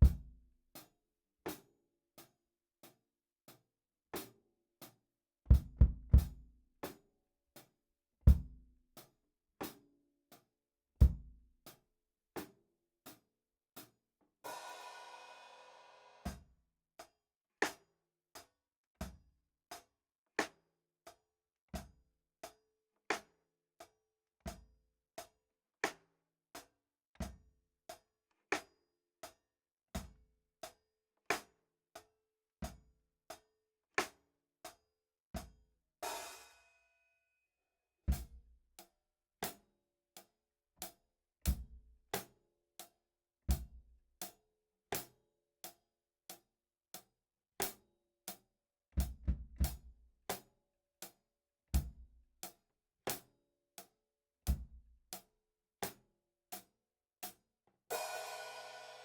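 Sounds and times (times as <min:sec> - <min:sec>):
cymbal crash: 0:58.0 - 0:59.0.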